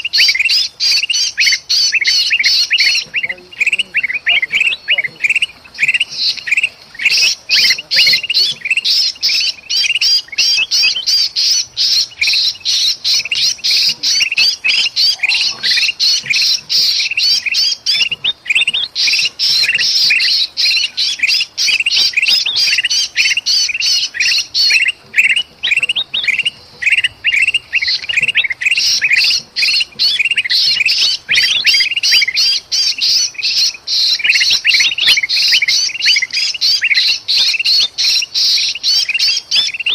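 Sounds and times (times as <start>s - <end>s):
bird distress calls: 0.0s - 39.9s
birds harsh chattering: 0.0s - 39.9s.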